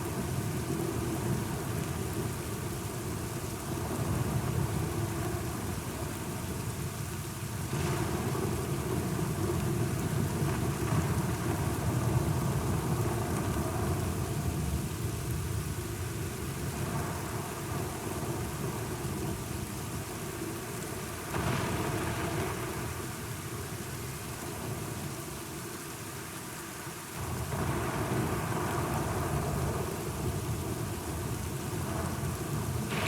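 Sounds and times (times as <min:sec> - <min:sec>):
steady rain: 0:00.0 - 0:33.0
deep rolling thunder: 0:31.8 - 0:33.0.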